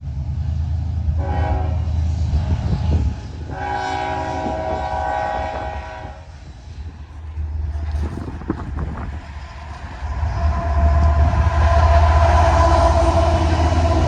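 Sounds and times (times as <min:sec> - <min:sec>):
locomotive engine rumble: 0:00.0 - 0:14.0
locomotive air horn blasts: 0:01.2 - 0:06.5, 0:10.2 - 0:14.0.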